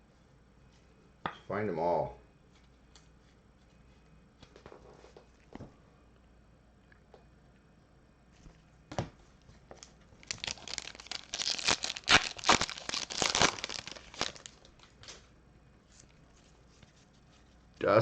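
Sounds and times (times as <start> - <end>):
wrapper tearing and crinkling: 9.8 - 15.2.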